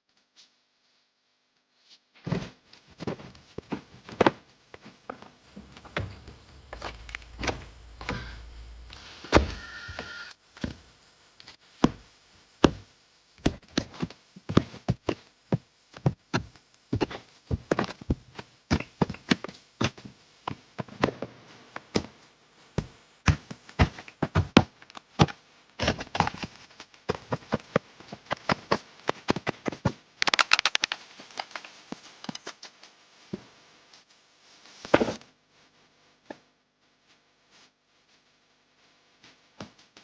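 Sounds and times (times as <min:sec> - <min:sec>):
short scraping rush: 0:05.4 - 0:10.3.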